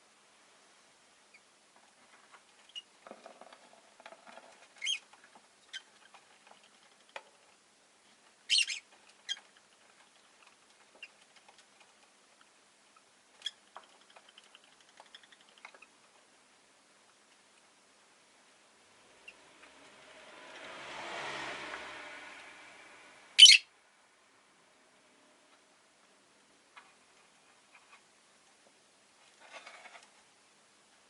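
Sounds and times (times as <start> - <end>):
lovebird chirping: 8.5 - 9.4, 23.4 - 23.7.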